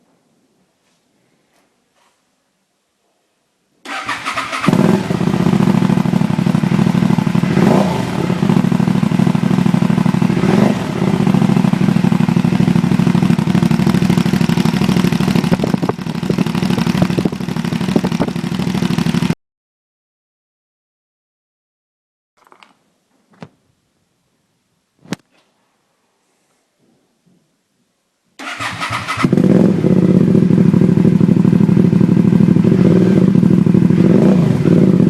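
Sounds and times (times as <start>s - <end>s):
engine cranking: 3.9s - 4.8s, 28.4s - 29.3s
motorcycle engine revving: 3.9s - 19.4s, 28.4s - 35.0s
motorcycle engine idling: 4.0s - 19.4s, 28.4s - 35.0s.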